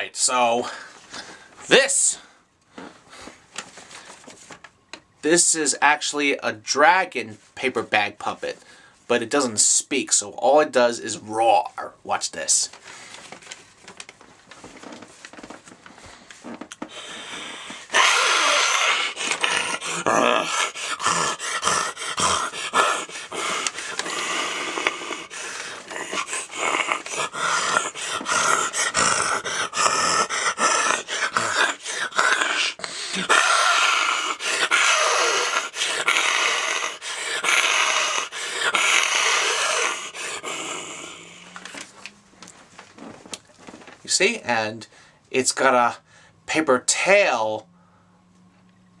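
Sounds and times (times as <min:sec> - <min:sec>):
man growling dragon roars: 0:17.9 - 0:41.5.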